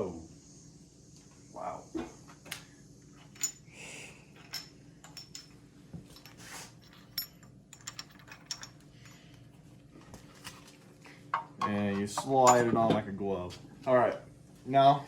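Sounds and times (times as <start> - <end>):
metal engine parts clinking: 4.4 - 9.3, 11.8 - 12.8.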